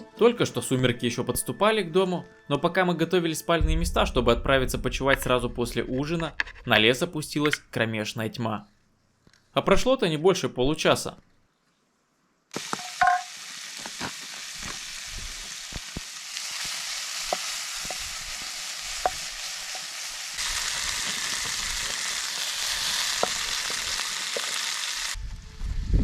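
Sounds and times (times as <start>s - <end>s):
sharp pops and crackles: 12.5s - 24.8s
meat sizzling: 12.5s - 25.2s.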